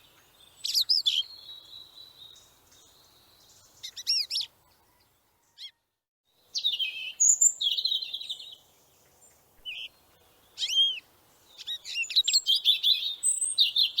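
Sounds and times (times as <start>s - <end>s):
small birds chirping: 0.0s - 5.8s, 6.4s - 14.0s.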